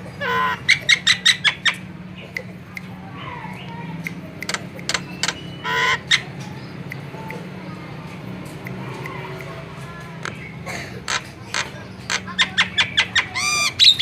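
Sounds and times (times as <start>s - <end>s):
myna clicking notes: 2.2s - 12.4s
myna harsh squawk: 4.9s - 6.3s, 11.1s - 14.0s.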